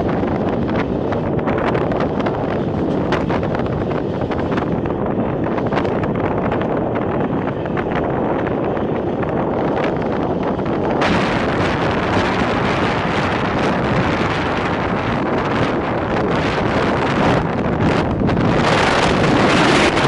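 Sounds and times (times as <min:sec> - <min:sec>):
train wheels rumbling on track: 0:00.0 - 0:20.0
wind buffeting microphone: 0:00.0 - 0:20.0.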